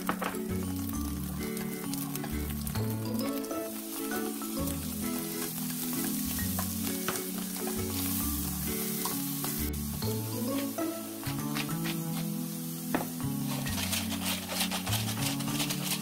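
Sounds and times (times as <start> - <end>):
background music: 0.0 - 16.0
food sizzling in a frying pan: 0.0 - 16.0
plastic spatula scraping a pan: 12.9 - 16.0.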